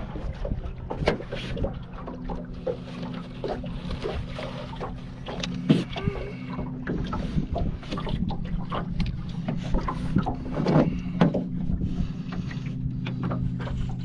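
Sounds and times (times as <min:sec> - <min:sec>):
small boat motor running: 0:00.0 - 0:14.0
water noise: 0:00.0 - 0:14.0
wind on microphone: 0:06.9 - 0:12.3.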